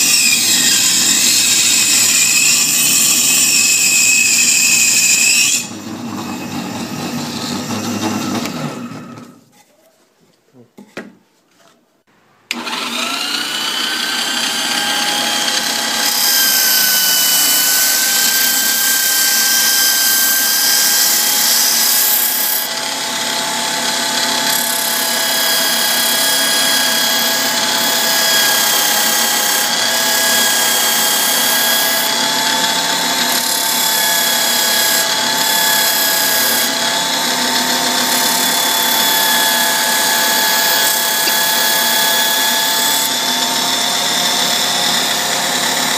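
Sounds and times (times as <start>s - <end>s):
small electric motor whining: 12.5s - 45.9s.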